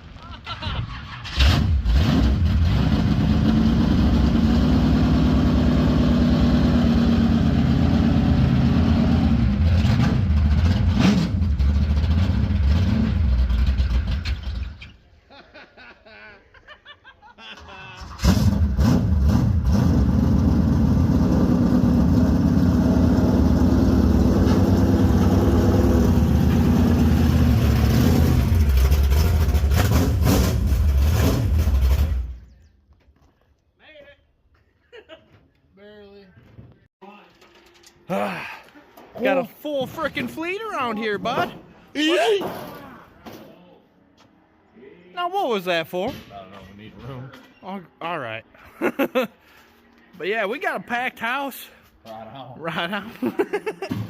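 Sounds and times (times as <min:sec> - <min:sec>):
truck engine running: 0:19.6 - 0:32.5.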